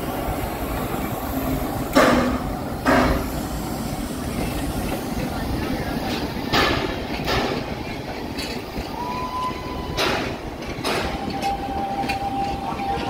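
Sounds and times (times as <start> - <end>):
train coaches rumbling: 0.0 - 13.0
wheels clicking over rail joints: 0.1 - 13.0
wheel squeal: 8.4 - 13.0.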